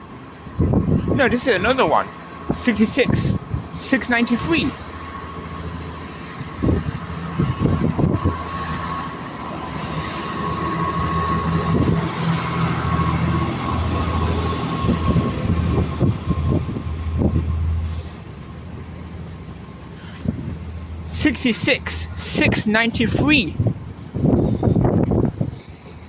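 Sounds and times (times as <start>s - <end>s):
freight train rumble and whine: 0.0s - 26.0s.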